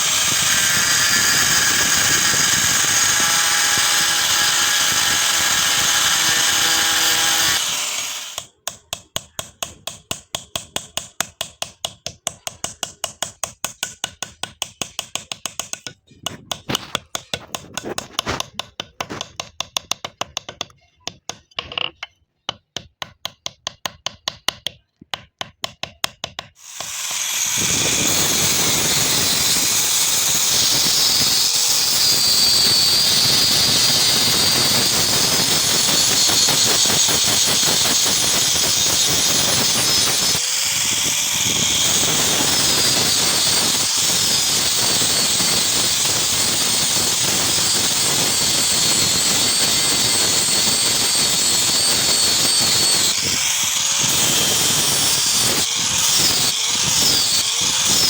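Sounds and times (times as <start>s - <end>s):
power grinder whining: 0.0s - 8.5s, 26.6s - 58.0s
hammer tapping: 8.4s - 26.6s.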